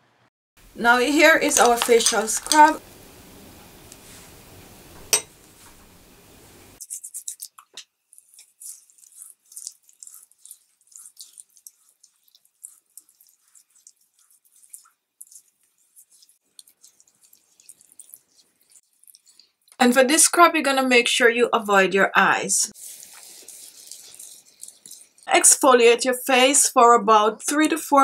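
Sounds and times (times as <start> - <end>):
wet crackles of paste scrub: 0.6 - 2.8, 6.8 - 19.8, 22.7 - 25.3.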